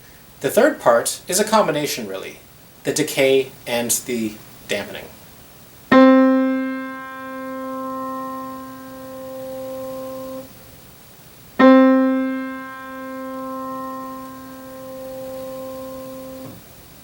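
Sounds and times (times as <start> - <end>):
piano damper cutting off note: 5.9 - 10.5, 11.6 - 16.6
piano note ringing: 5.9 - 10.6, 11.6 - 16.6.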